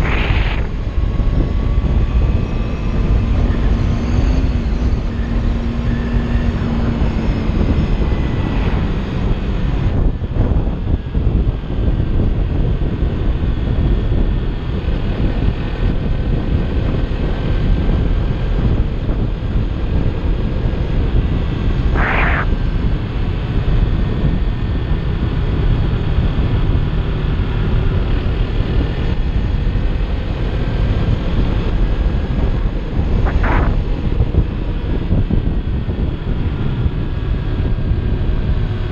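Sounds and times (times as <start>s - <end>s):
brief sharp noises: 0.0s - 0.7s, 22.0s - 22.5s
motorcycle engine cruising: 0.0s - 38.9s
wind rush over microphone: 0.0s - 38.9s.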